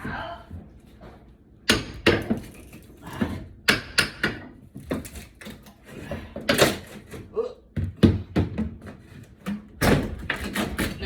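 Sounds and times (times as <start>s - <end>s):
wooden knocks and cracks: 7.8s - 11.0s.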